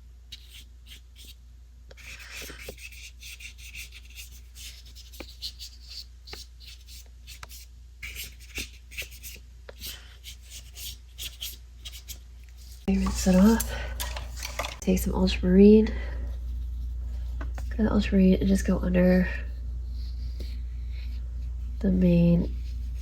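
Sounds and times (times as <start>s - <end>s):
steady low hum: 0.0s - 23.0s
paintbrush dabbing on paper: 19.5s - 23.0s.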